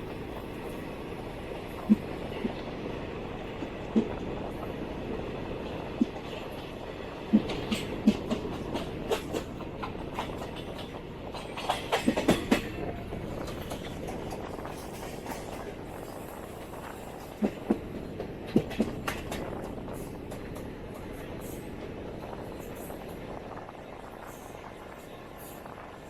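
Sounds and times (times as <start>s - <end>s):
train wheels rumbling on track: 0.0s - 26.0s
wheels clacking over rail joints: 1.4s - 21.9s.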